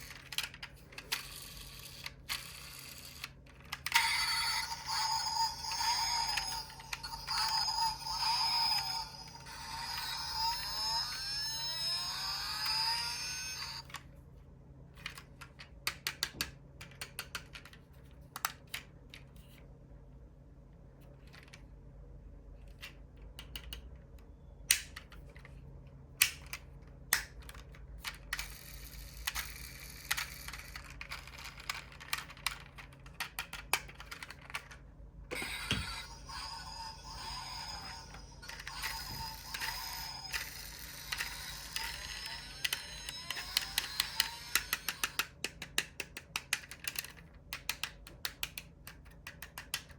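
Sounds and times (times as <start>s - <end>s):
music with gliding tones: 4.0s - 12.8s
model cars clicking and tapping: 40.2s - 49.9s.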